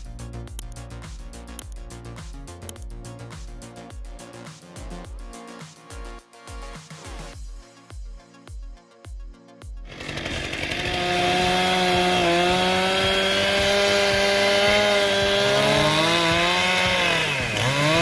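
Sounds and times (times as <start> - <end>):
background music with beat: 0.0 - 18.0
chainsaw running: 9.9 - 18.0.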